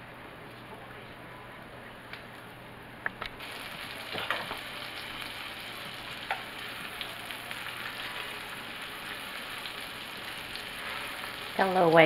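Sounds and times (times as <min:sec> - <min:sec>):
chicken frying in butter: 0:03.4 - 0:12.0.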